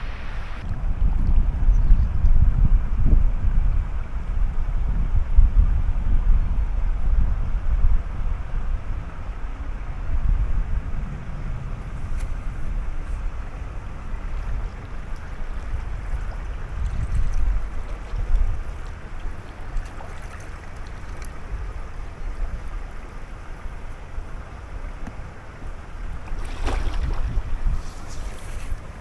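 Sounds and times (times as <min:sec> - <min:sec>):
river water rushing: 0:00.0 - 0:00.6, 0:17.5 - 0:29.0
wind buffeting microphone: 0:00.0 - 0:29.0.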